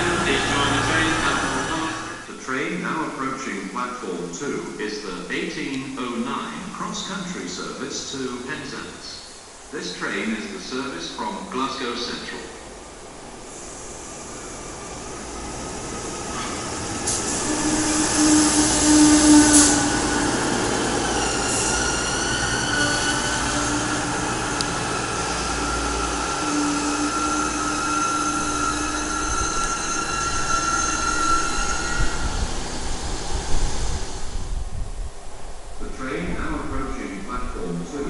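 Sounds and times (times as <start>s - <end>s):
train engines rumbling: 0.0s - 38.0s
high brake squeal: 16.4s - 20.2s, 21.1s - 32.8s.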